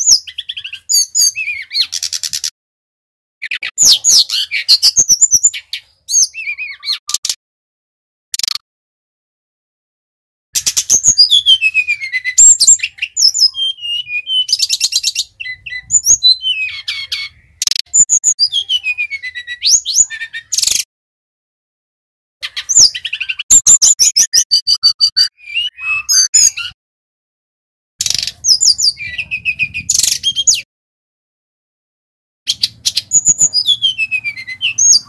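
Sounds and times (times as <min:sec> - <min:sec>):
flycatcher singing chirps and whistles: 0:00.0 - 0:02.5, 0:03.4 - 0:07.3, 0:10.6 - 0:20.9, 0:22.4 - 0:26.8, 0:28.0 - 0:30.7, 0:32.5 - 0:35.0.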